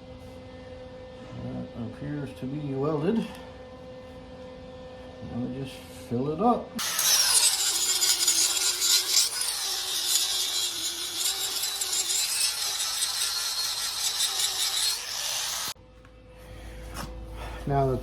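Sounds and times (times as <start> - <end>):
angle grinder grinding steel: 6.8 - 15.8.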